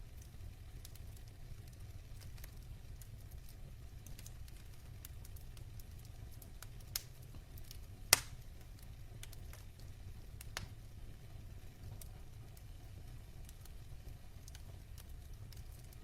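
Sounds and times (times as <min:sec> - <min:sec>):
fire popping: 0:00.0 - 0:16.0
logs crackling in a fireplace: 0:00.0 - 0:16.0.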